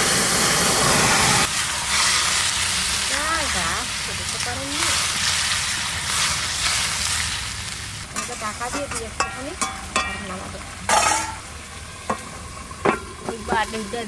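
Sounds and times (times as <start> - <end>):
food sizzling in hot oil: 0.0 - 14.0
metal spatula scraping pan: 8.2 - 11.4.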